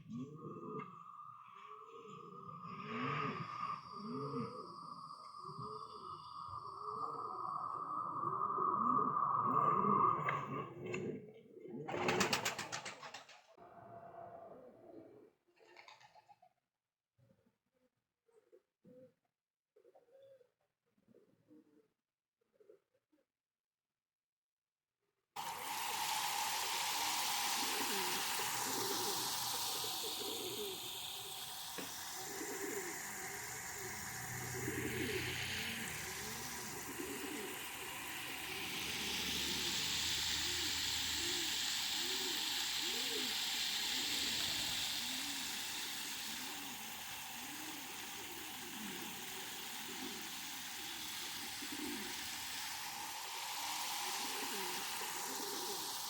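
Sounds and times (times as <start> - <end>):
pigeons cooing: 0.0 - 13.2, 25.4 - 56.0
steady background hiss: 25.4 - 56.0.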